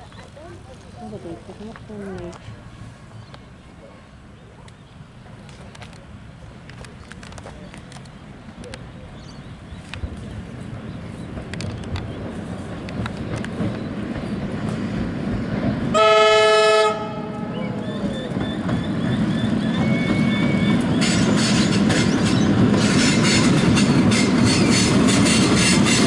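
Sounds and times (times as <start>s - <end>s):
train rumbling: 0.0s - 26.0s
wheels clacking over rail joints: 9.7s - 16.2s, 17.8s - 26.0s
train horn: 15.9s - 17.7s
high wheel squeal: 17.5s - 26.0s.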